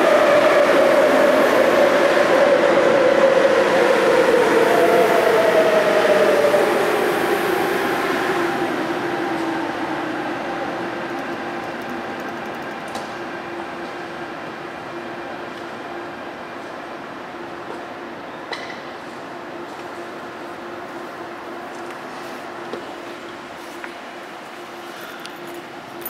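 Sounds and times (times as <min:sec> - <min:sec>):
train running past: 0:00.0 - 0:25.0
train motor whine: 0:10.5 - 0:13.2.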